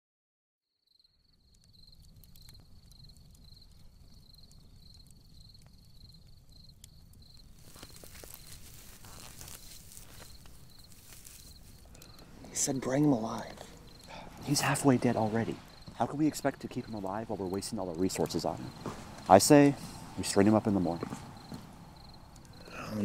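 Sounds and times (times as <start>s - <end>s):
cricket chirping: 0.8s - 23.0s
rustling crackle with clicks: 1.3s - 19.6s, 20.2s - 22.6s.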